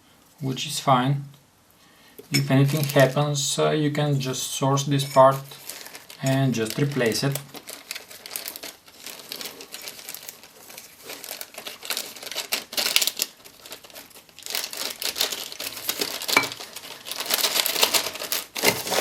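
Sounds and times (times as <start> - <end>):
packaging crinkling and rustling: 2.3 - 3.5, 4.8 - 19.0.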